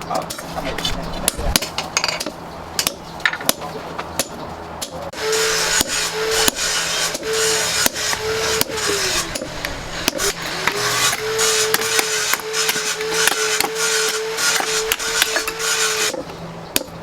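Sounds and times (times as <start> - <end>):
harsh rasping on metal: 5.2 - 16.2
power tool motor humming: 5.2 - 16.2.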